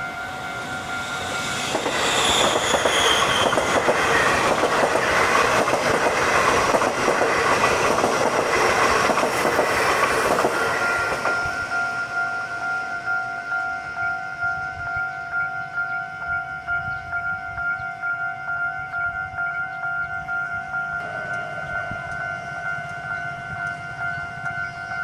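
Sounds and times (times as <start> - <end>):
high train whine: 0.0 - 25.0
two-tone crossing warning bell: 0.0 - 25.0
train wheels clattering: 0.6 - 11.9.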